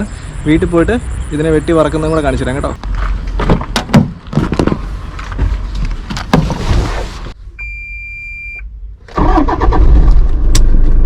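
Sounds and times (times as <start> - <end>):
car driving road noise: 0.0 - 7.4
knocks and rustling: 2.8 - 7.3.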